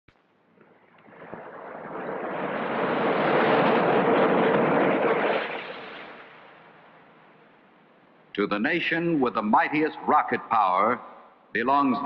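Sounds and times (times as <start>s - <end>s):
rocket engine roaring: 0.4s - 7.4s.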